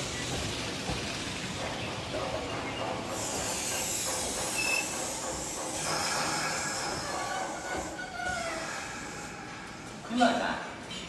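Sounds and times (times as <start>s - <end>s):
electric train wheels rumbling: 0.0s - 10.9s.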